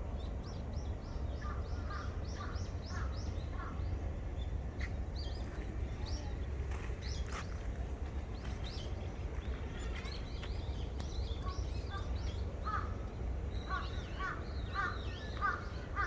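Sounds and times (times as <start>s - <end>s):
steady low rumble: 0.0s - 16.0s
small birds chirping: 4.8s - 16.0s
crow cawing: 12.6s - 13.0s, 13.7s - 16.0s.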